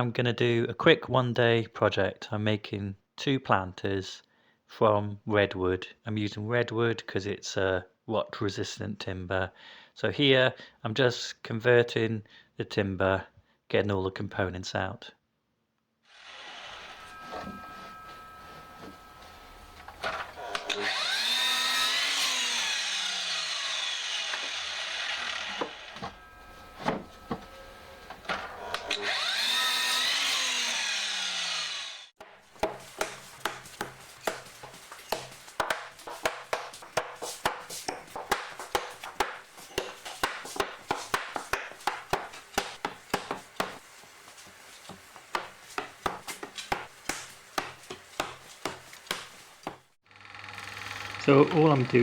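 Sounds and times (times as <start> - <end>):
mitre saw cutting wood: 16.1 - 17.1, 19.9 - 52.0.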